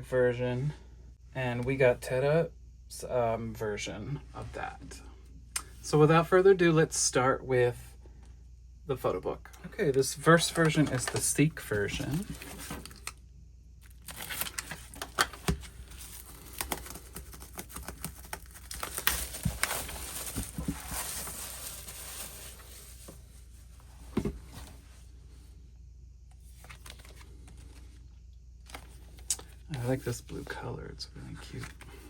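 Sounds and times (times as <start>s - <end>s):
plastic wrapping crinkling: 13.8s - 23.2s.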